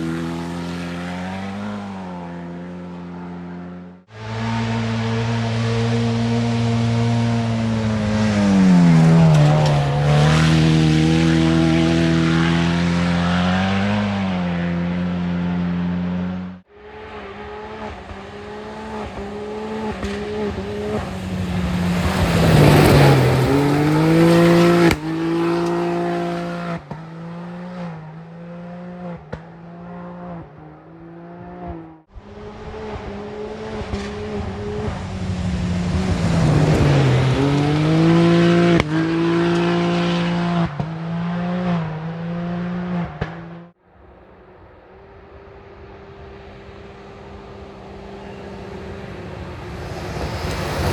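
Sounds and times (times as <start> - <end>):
rally car engine passing: 0.0 - 50.9
quick gear changes: 19.1 - 27.0.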